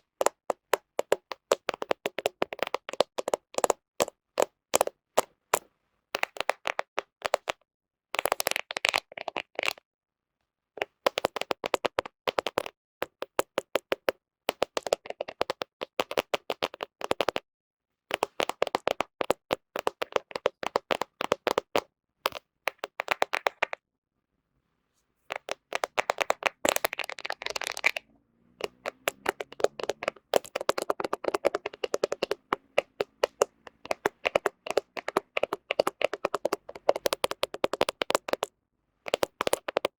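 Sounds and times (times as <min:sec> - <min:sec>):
fingernails tapping on phone lens: 0:00.0 - 0:04.9, 0:06.2 - 0:07.6, 0:10.8 - 0:17.4, 0:18.1 - 0:23.8, 0:25.3 - 0:28.0, 0:28.6 - 0:38.5, 0:39.1 - 0:39.9.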